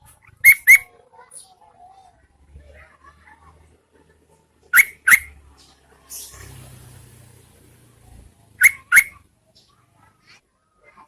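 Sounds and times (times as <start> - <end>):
bird call notes: 0.4 - 0.9, 4.7 - 5.3, 8.6 - 9.2.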